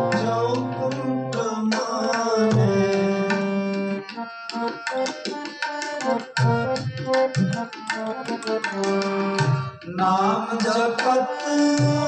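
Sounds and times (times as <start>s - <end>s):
harmonium melody: 0.0s - 12.0s
tabla rhythm: 0.0s - 12.0s.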